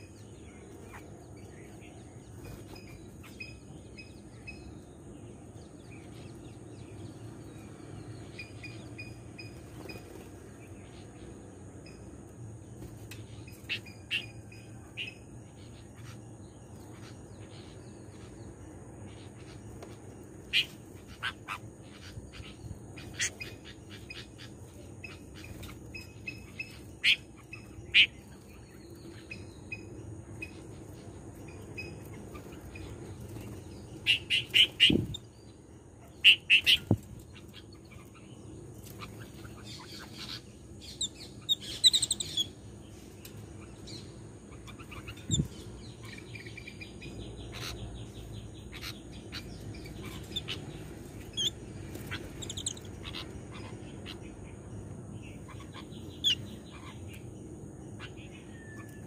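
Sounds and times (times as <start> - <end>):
small birds chirping and chattering: 0.0 - 59.0.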